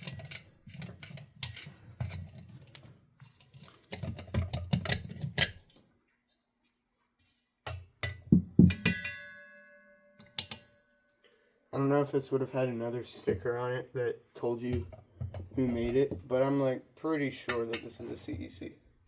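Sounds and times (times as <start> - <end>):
metal parts and tools clattering: 0.0 - 5.8, 7.7 - 10.9
metal part ringing: 8.0 - 11.2.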